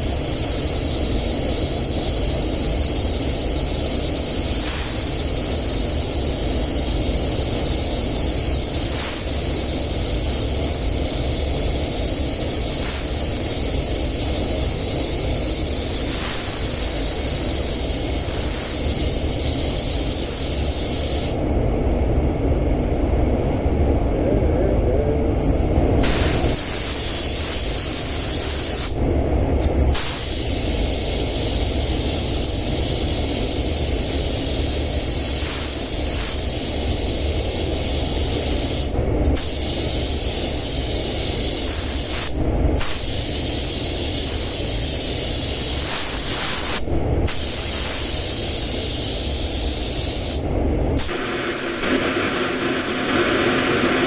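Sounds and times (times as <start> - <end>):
paint spray gun hissing: 0.0 - 21.4, 26.0 - 29.0, 30.0 - 50.4, 51.0 - 54.0
low rumble: 21.4 - 26.4.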